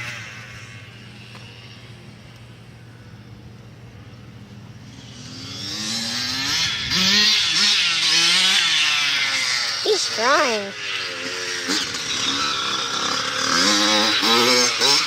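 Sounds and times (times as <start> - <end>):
dirt bike engine revving: 0.0 - 1.8, 4.8 - 15.0.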